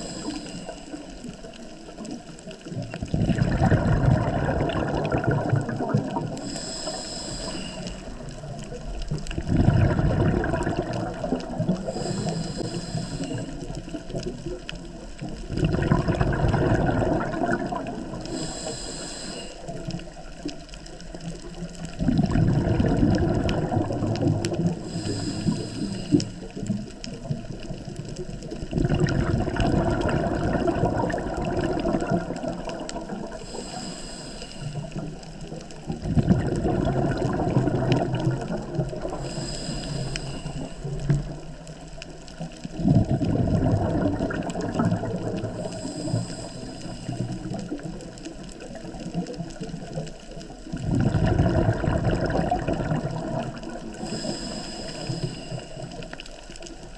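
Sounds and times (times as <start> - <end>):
diver inhaling through regulator: 0.0 - 1.6, 5.6 - 8.4, 9.7 - 14.0, 15.7 - 20.2, 22.2 - 26.7, 33.0 - 35.3, 36.5 - 41.3, 44.7 - 47.5, 53.9 - 56.2
exhaled bubbles gurgling: 0.0 - 56.9.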